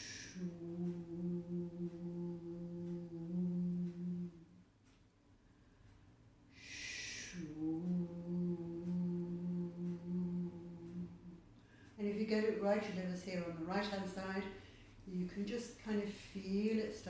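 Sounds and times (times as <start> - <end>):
woman holding long oo sound: 0.0 - 4.6, 6.6 - 11.5.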